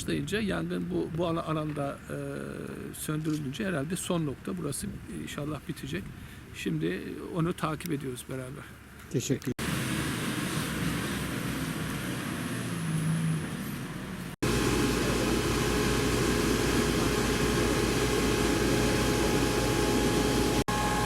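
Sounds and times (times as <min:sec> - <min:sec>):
engine noise: 0:09.6 - 0:21.0
steady whining tones: 0:14.4 - 0:21.0.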